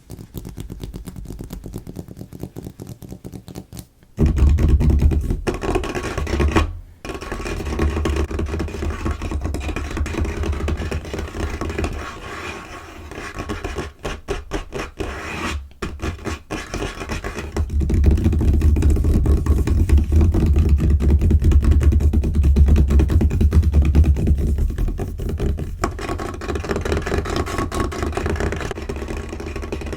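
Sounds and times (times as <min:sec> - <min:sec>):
fingernails tapping and scratching table: 0:15.8 - 0:29.9.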